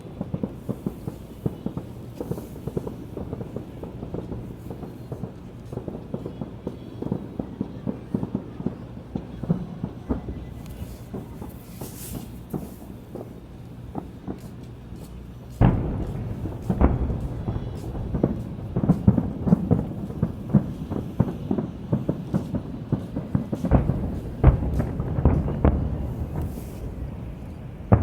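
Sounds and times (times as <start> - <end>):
firework pops: 0.0 - 28.0
fireworks bangs and crackles: 0.0 - 28.0
firework boom: 15.6 - 28.0.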